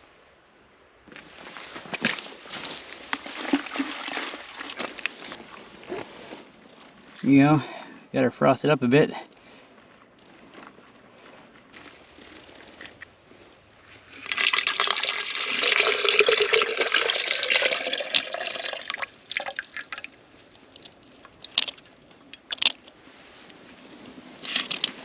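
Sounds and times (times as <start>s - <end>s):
sap pouring into a pot: 3.4s - 4.8s, 14.2s - 22.7s.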